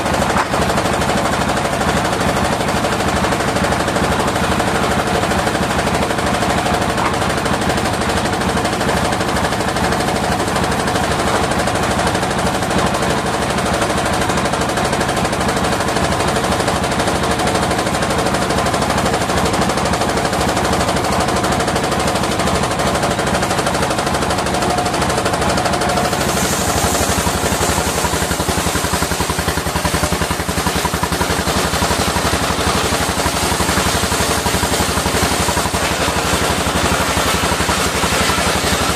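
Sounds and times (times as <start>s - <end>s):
sawmill engine pulsing: 0.0s - 38.9s.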